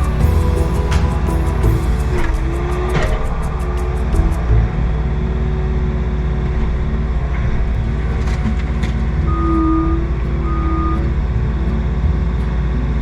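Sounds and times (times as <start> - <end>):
thin high tone: 0.0 - 4.1
skid steer engine running: 0.0 - 13.0.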